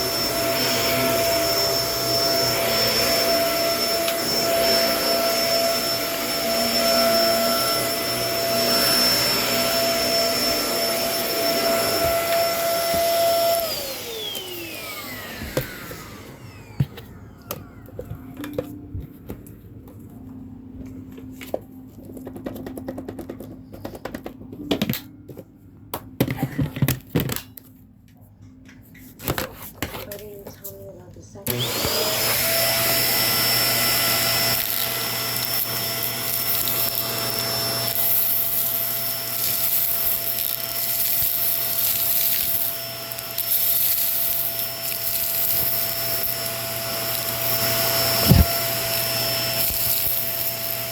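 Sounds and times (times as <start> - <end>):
vacuum cleaner motor whine: 0.0 - 19.5, 31.4 - 50.9
scattered clicks and knocks: 22.0 - 25.1.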